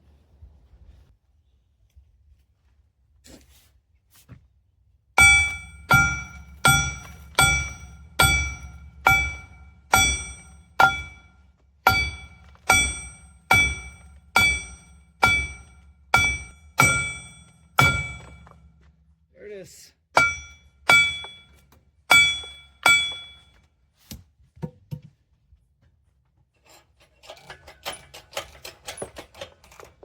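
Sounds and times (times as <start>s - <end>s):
hammer striking steel: 5.2s - 18.7s, 20.2s - 23.5s.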